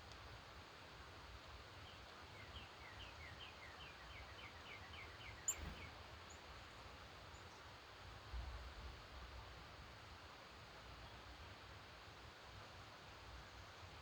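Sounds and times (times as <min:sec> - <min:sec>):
songbird whistling: 0:05.4 - 0:05.9.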